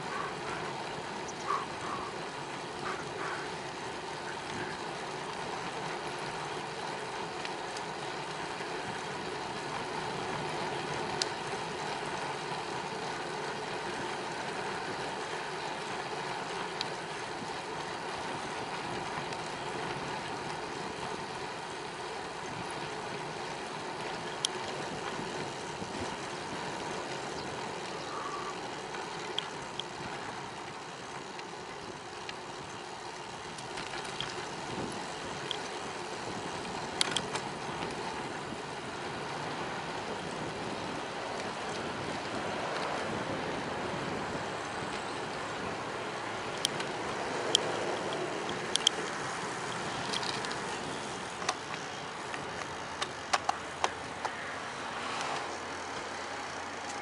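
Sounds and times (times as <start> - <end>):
bicycle tyre noise: 0.0 - 57.0
sharp ticks: 46.5 - 50.7.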